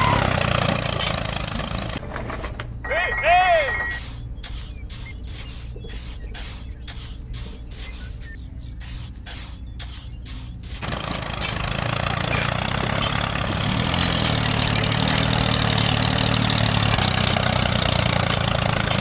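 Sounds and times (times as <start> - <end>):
engine starting and droning: 0.0 - 3.0, 9.8 - 19.0.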